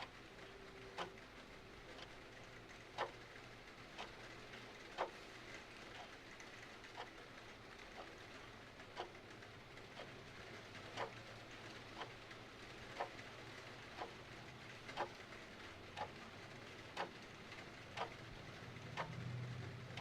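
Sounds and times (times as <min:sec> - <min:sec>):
clock ticking: 0:00.0 - 0:01.2, 0:01.8 - 0:20.0.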